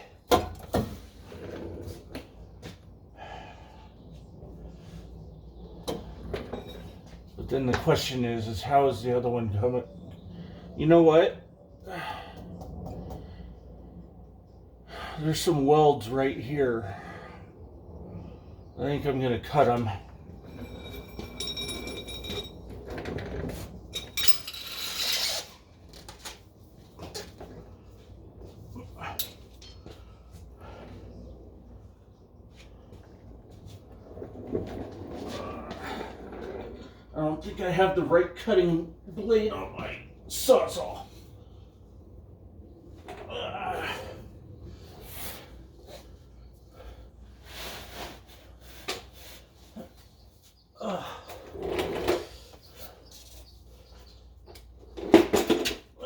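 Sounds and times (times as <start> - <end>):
low background rumble: 1.1 - 24.4
faint breathing: 3.1 - 5.2, 11.8 - 14.0, 16.8 - 18.6
metal tools clinking and rattling: 20.3 - 25.4, 29.2 - 29.8.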